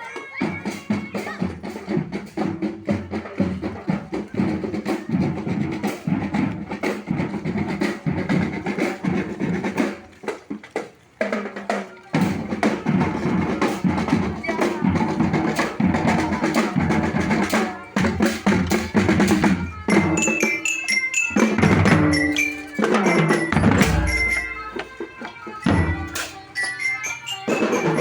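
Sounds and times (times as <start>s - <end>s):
bass and snare drums beating: 0.0s - 28.0s
marching band playing: 0.0s - 28.0s
high bell-like melody: 19.8s - 28.0s.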